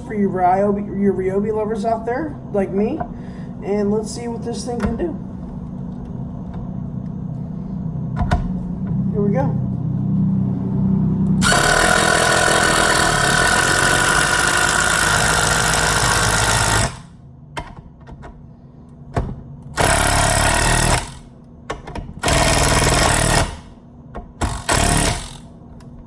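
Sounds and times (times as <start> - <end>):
impact driver motor spinning: 11.4 - 17.1, 19.8 - 21.3, 22.2 - 23.7, 24.4 - 25.5
impact driver hammering: 11.4 - 17.8, 19.8 - 25.5.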